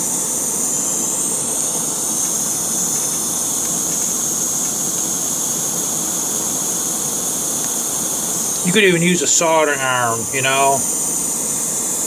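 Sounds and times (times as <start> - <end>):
steady hissing rush: 5.2 - 11.7.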